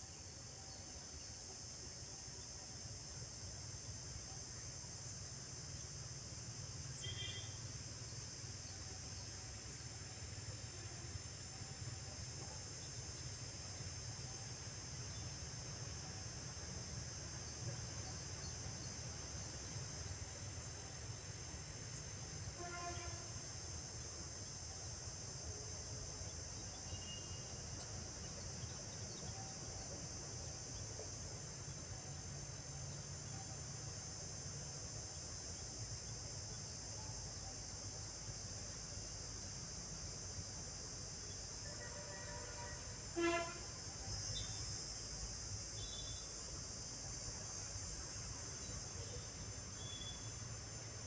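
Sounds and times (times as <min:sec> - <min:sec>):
insect chorus drone: 0:00.0 - 0:51.0.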